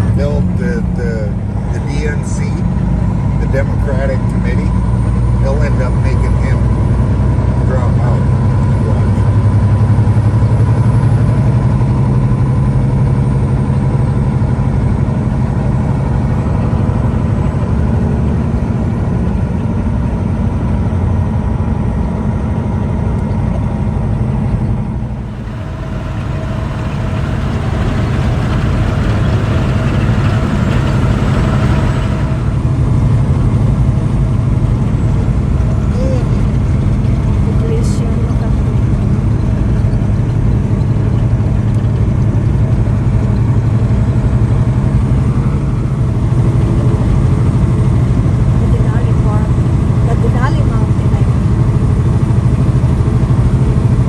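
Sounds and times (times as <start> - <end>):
truck diesel engine running: 0.0 - 20.3, 24.8 - 54.0
road noise: 24.9 - 42.2.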